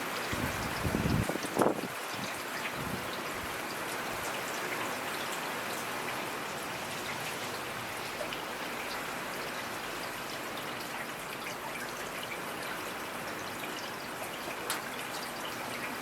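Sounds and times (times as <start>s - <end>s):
rain hissing: 0.0s - 4.3s.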